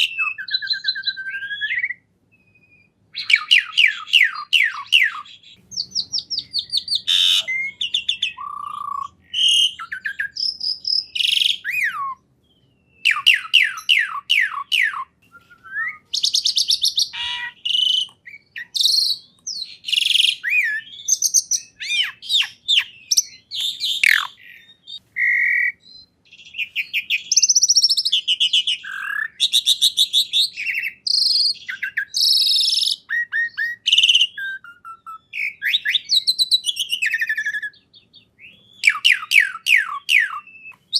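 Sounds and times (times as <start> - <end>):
songbird singing trills: 0.0 - 40.9.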